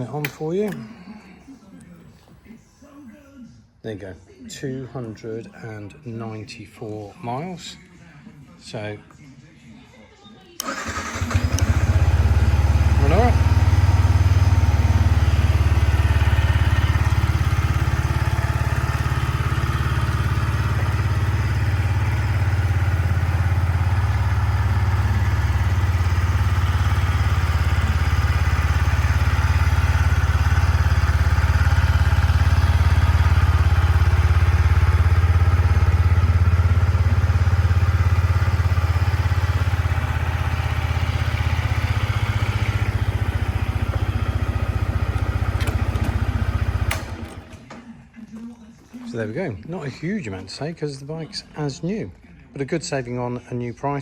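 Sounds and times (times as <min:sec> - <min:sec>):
motorcycle engine idling: 0:10.6 - 0:47.7.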